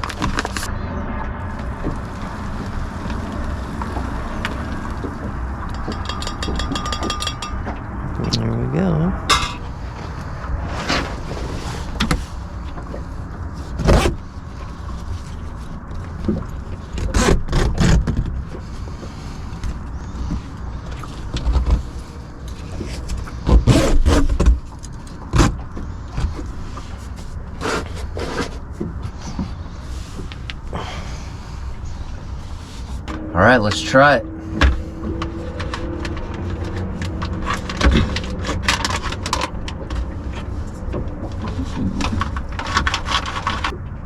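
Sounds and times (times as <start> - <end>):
steady low rumble: 0.0 - 17.0, 28.5 - 44.0
camp cooking gear clinking: 5.7 - 7.9, 9.3 - 9.6.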